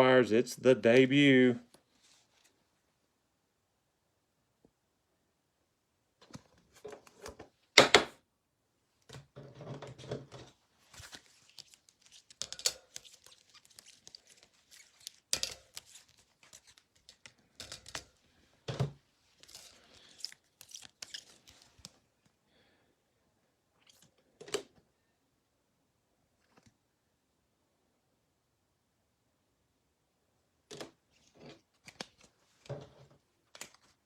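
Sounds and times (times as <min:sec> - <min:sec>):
packaging tearing and crinkling: 0:11.0 - 0:18.0, 0:19.4 - 0:21.9.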